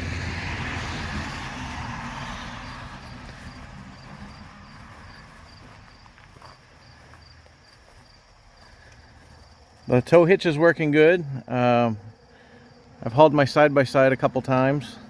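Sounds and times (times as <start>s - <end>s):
car passing: 0.0s - 10.0s
cricket chirping: 0.5s - 15.0s.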